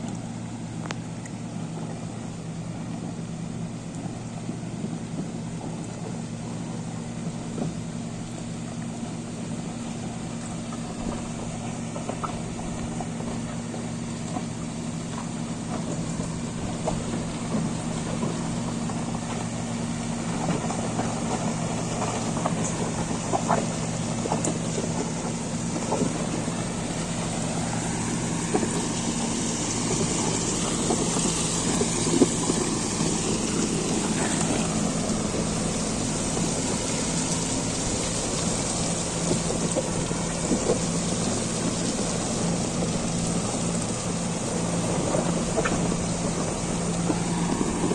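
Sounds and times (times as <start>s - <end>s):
diesel engine running: 0.0s - 47.9s
small knocks and crackles: 10.3s - 47.9s.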